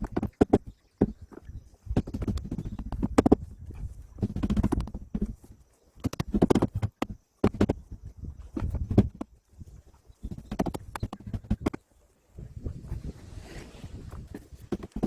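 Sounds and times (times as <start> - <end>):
knocks and clatter: 6.0 - 9.3.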